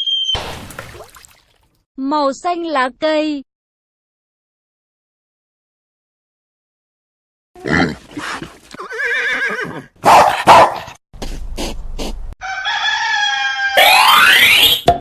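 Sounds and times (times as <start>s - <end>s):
rooster-like call: 12.4s - 14.0s.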